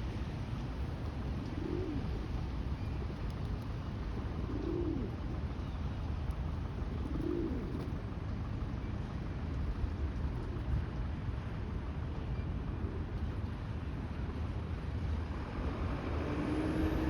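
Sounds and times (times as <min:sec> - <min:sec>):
pigeon cooing: 0:01.4 - 0:02.2, 0:04.4 - 0:05.2, 0:07.0 - 0:07.9.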